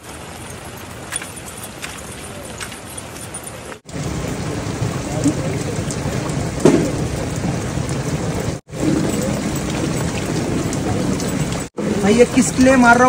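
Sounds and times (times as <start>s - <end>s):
heavy rain hissing: 3.7s - 13.0s.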